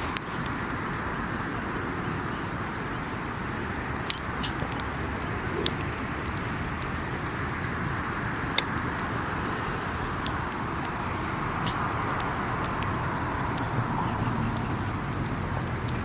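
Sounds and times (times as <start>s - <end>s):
campfire hissing: 0.0s - 16.0s
fire crackles and pops: 0.0s - 16.0s.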